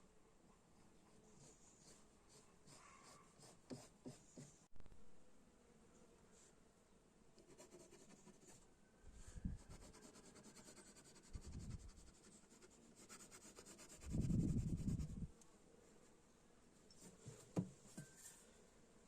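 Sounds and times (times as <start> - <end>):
faint rubbing and scraping: 16.9 - 18.6.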